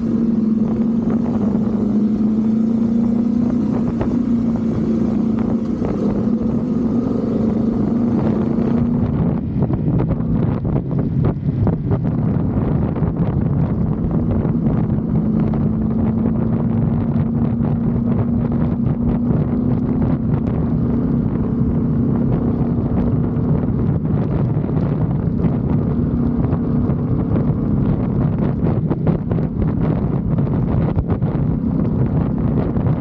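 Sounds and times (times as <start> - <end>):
motorcycle engine running: 0.0 - 33.0
wind buffeting microphone: 0.0 - 33.0.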